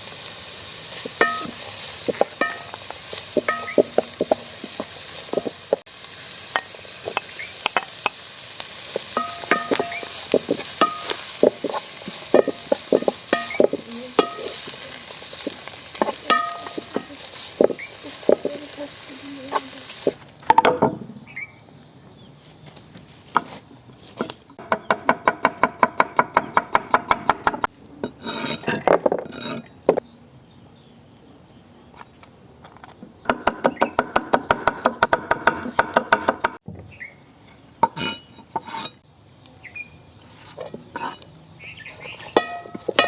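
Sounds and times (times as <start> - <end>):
utensil scraping bowl: 8.9 - 20.2, 40.3 - 41.3.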